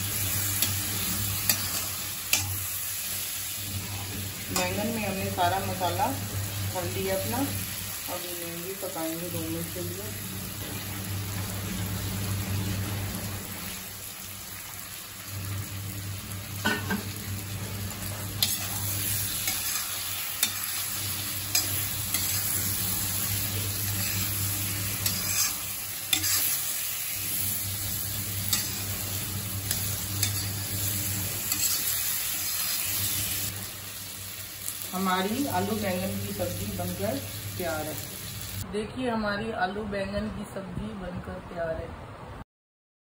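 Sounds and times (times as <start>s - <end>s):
vegetables sizzling in oil: 0.0s - 38.7s
steel spatula scraping pan: 18.4s - 26.8s, 31.4s - 32.1s.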